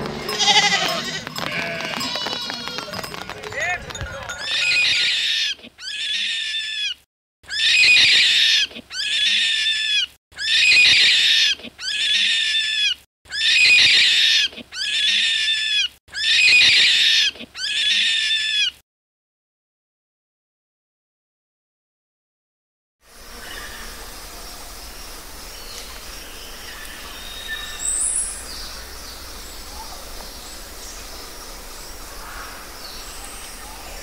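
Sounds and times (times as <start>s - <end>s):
rabbit squeaking: 4.4s - 18.8s.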